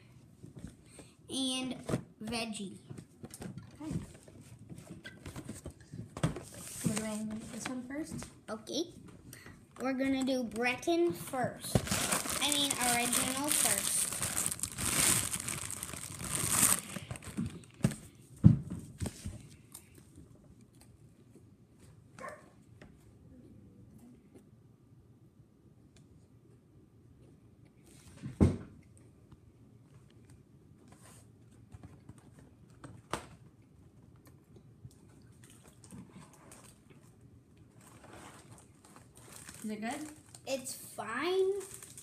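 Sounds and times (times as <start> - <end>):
plastic packaging crinkling: 11.7 - 17.9, 37.7 - 40.5, 41.4 - 42.0.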